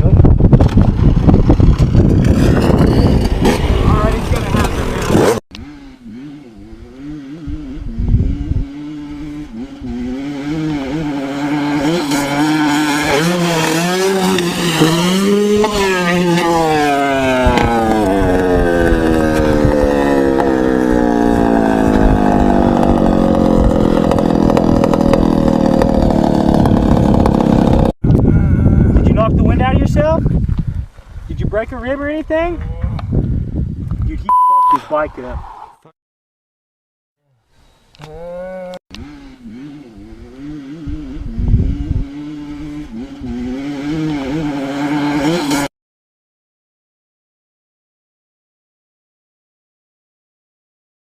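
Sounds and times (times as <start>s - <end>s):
motorcycle engine at high revs: 0.8s - 28.0s, 38.9s - 45.7s.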